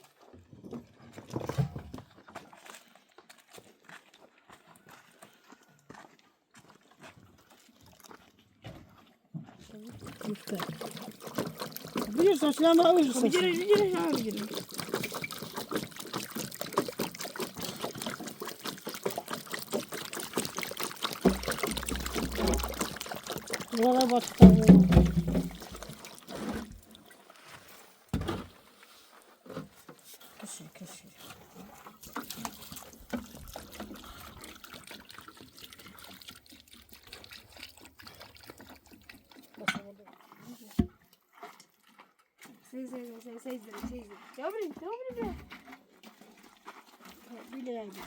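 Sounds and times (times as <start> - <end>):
small splashes and crackles: 0.0 - 48.0
water trickling: 9.6 - 27.6, 30.4 - 48.0.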